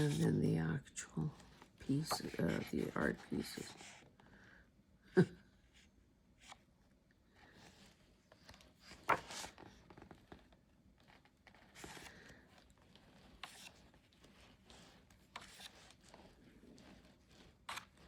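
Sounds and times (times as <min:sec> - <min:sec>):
book pages turning: 0:01.4 - 0:04.1, 0:07.4 - 0:18.0.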